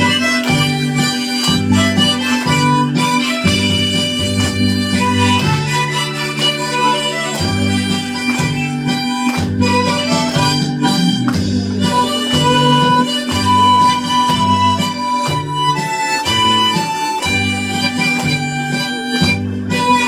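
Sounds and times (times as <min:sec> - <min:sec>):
bass accompaniment: 0:00.0 - 0:20.0
harmonica melody: 0:00.0 - 0:20.0.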